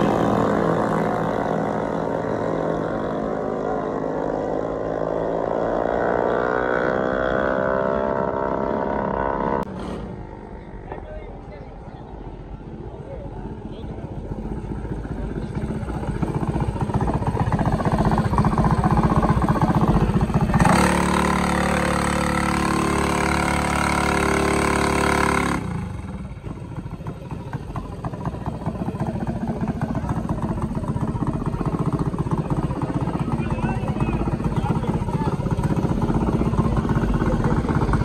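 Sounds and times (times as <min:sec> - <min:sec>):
vehicle engine running: 0:08.1 - 0:38.0.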